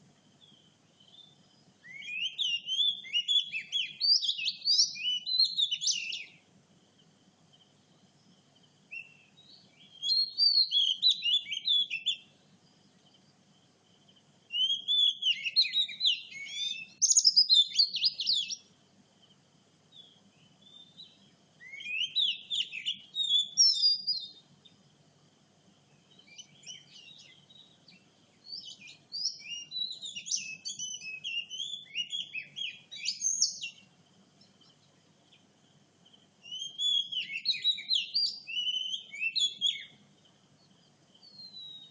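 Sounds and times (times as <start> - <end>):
bird singing whistled phrases: 1.1 - 6.4, 8.9 - 12.3, 14.5 - 18.6, 20.6 - 24.4, 26.1 - 27.7, 28.4 - 33.8, 36.4 - 40.0, 41.2 - 41.9.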